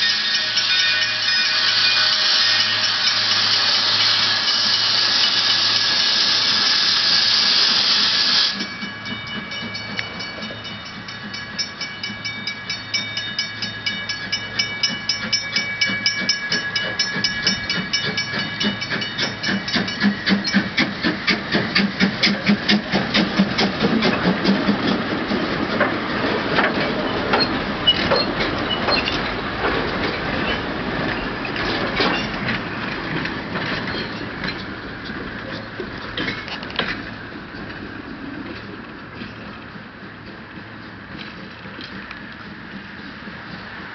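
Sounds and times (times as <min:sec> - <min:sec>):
loud hiss of steam: 0:00.0 - 0:09.6, 0:15.7 - 0:34.2
steam locomotive chuffing: 0:00.0 - 0:43.9.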